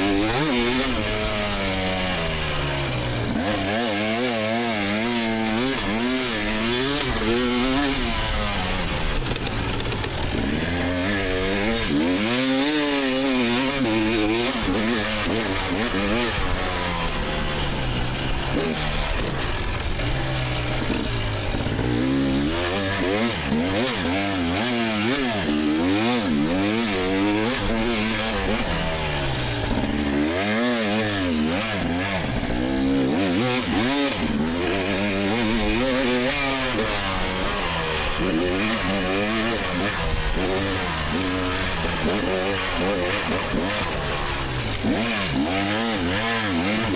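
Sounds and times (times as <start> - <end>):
dirt bike engine revving: 0.0 - 46.9.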